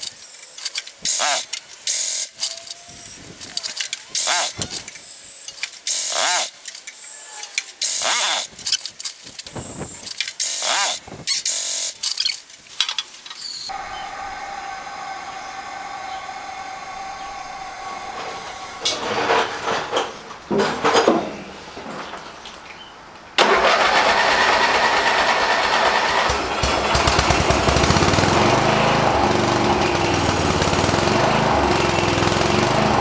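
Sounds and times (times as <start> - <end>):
lawnmower engine cranking: 7.8 - 21.1, 23.4 - 33.0
engine droning: 13.7 - 19.9, 23.4 - 33.0.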